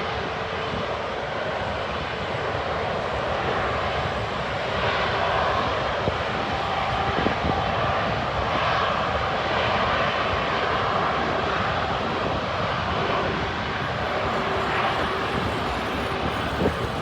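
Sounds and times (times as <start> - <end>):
jet engines roaring: 12.0 - 17.0.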